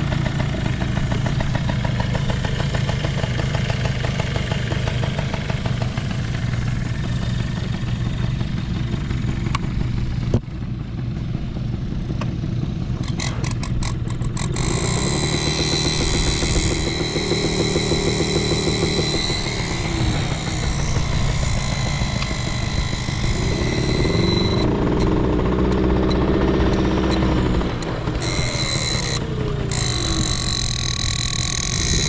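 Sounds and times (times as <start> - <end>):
scooter engine running: 0.0 - 32.0
sharp clicks: 13.0 - 32.0.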